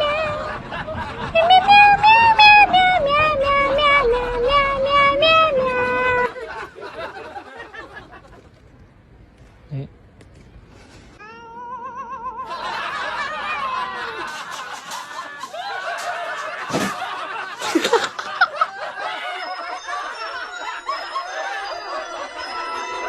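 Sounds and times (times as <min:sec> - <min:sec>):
people laughing: 0:00.0 - 0:02.9, 0:05.6 - 0:08.7, 0:11.6 - 0:23.0.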